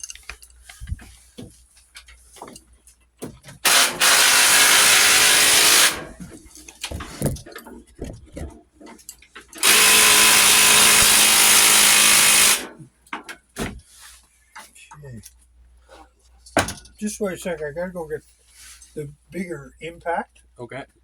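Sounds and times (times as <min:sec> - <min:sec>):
impact wrench: 0:03.6 - 0:06.3, 0:09.6 - 0:12.8.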